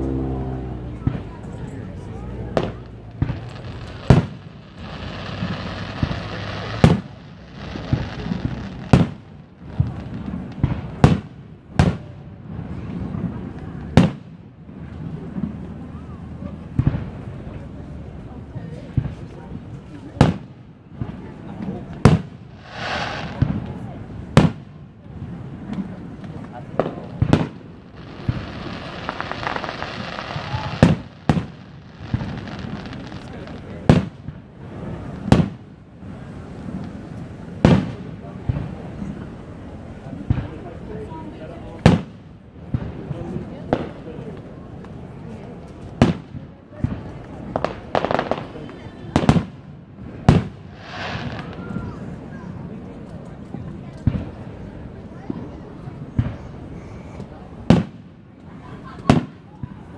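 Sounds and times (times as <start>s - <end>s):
fireworks booming: 0.0s - 1.4s, 2.2s - 17.7s, 18.9s - 52.8s, 57.4s - 59.9s
fireworks popping and crackling: 0.9s - 59.9s
crackling hiss: 2.6s - 11.0s, 21.8s - 24.7s, 25.4s - 38.1s, 47.0s - 52.3s.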